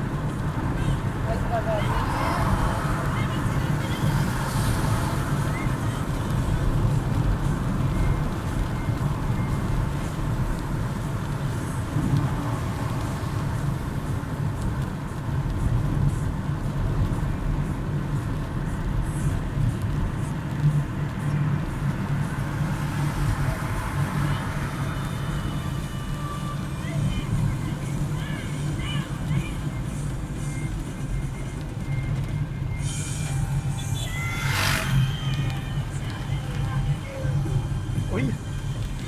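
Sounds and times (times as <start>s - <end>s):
car engine and tyres on wet road: 0.0s - 39.0s
heavy rain: 0.0s - 39.0s.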